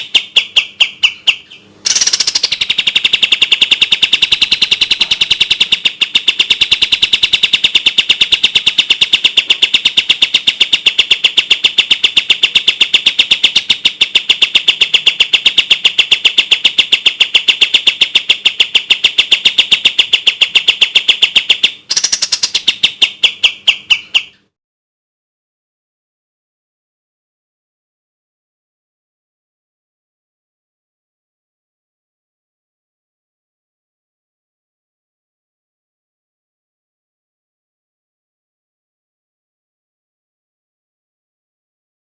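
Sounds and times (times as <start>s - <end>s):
bird song of rapid chirps: 0.0s - 24.6s.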